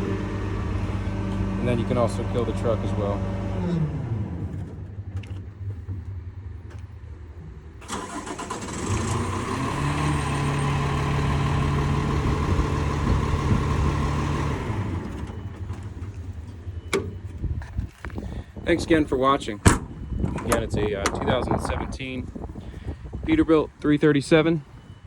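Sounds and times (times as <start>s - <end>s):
diesel truck engine starting: 0.0s - 6.4s, 7.6s - 24.1s.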